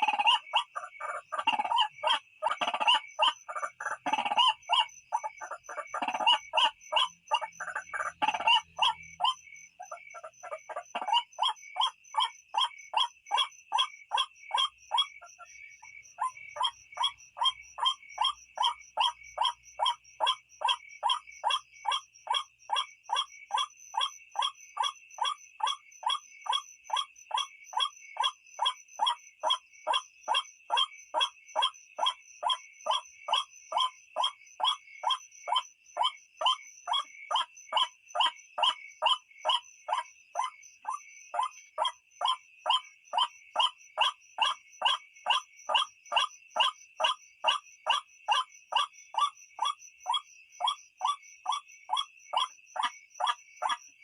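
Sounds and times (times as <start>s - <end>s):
waterhen harsh croaking call: 0.0s - 11.6s.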